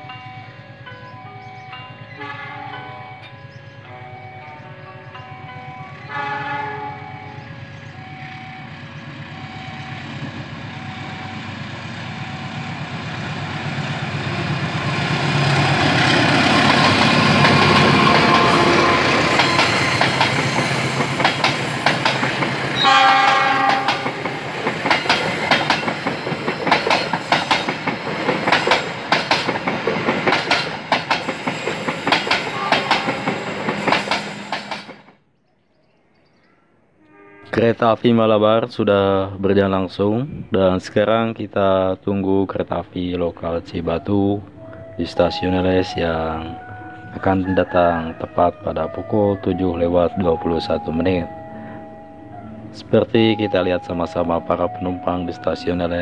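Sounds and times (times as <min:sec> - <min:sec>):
diesel locomotive passing: 0:00.0 - 0:35.2, 0:37.0 - 0:56.0
train horn blast: 0:02.1 - 0:03.2, 0:04.0 - 0:07.5, 0:15.3 - 0:21.2, 0:22.1 - 0:24.6, 0:32.4 - 0:34.6, 0:37.0 - 0:37.9
train wheels clacking over rail joints: 0:16.0 - 0:35.1.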